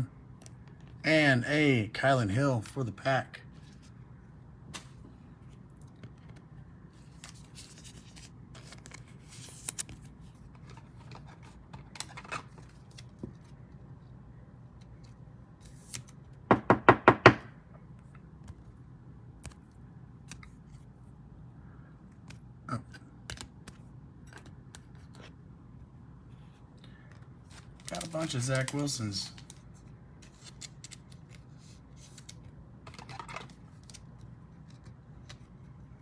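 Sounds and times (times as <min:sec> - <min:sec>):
cards clicking and rustling: 0:04.6 - 0:13.8, 0:19.4 - 0:20.9, 0:22.1 - 0:25.4, 0:26.9 - 0:35.8.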